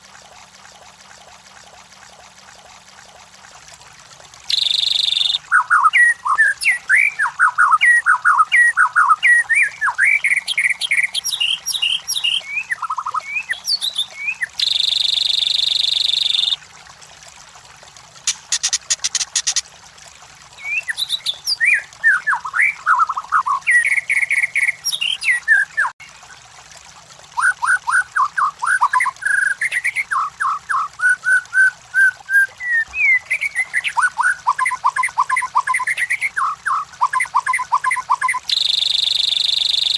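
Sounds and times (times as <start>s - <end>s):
songbird whistling and chirping: 4.5s - 16.6s, 20.6s - 25.9s, 27.4s - 39.9s.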